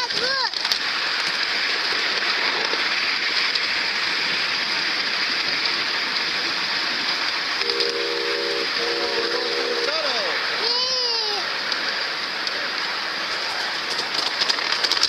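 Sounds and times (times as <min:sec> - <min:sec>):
ride-on train rushing hiss: 0:00.0 - 0:15.0
chime-toned train whistle blasts: 0:07.6 - 0:09.9.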